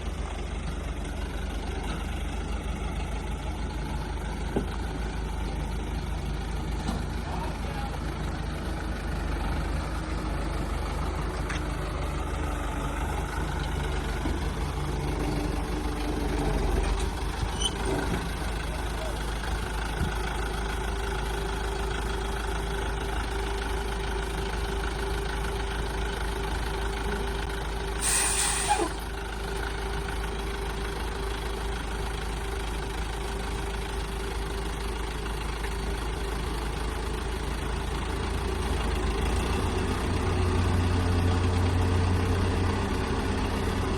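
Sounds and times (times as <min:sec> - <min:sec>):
large engine droning: 0:00.0 - 0:43.9
air hissing: 0:28.0 - 0:29.0.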